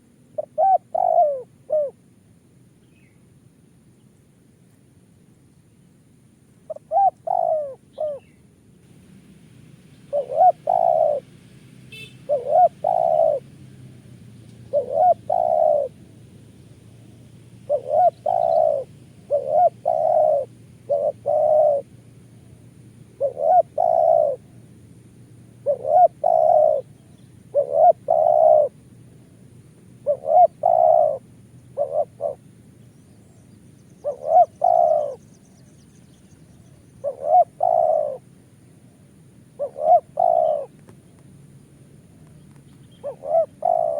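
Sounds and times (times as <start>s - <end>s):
dove cooing: 0.0s - 2.0s, 6.7s - 8.4s, 10.0s - 13.6s, 14.6s - 16.1s, 16.8s - 24.7s, 25.5s - 29.4s, 30.0s - 32.5s, 33.1s - 35.6s, 36.4s - 38.3s, 39.5s - 41.2s, 42.1s - 43.9s.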